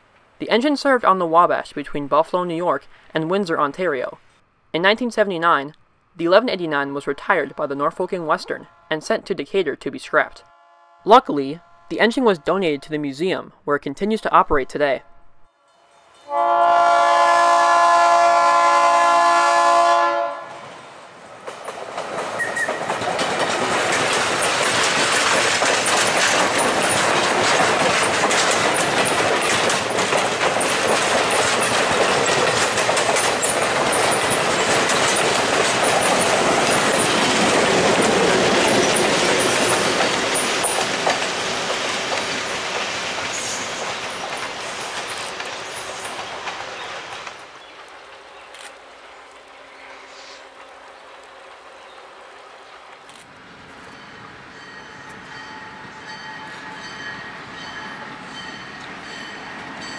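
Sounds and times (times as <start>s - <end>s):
locomotive horn blast: 8.5s - 9.2s, 10.4s - 12.6s, 16.2s - 20.6s
train wheels clicking over rail joints: 21.3s - 48.7s.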